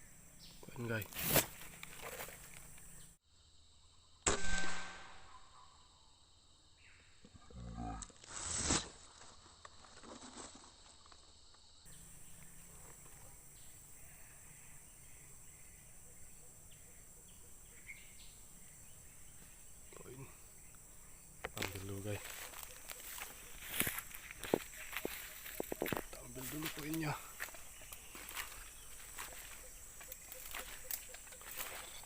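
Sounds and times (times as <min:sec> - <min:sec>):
faint outdoor background: 0:00.0 - 0:32.0
air rifle shot: 0:04.2 - 0:05.4.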